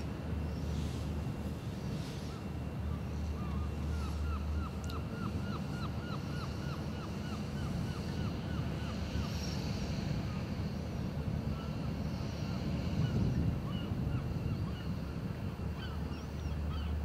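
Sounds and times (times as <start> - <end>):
wind rumble: 9.0 - 15.7.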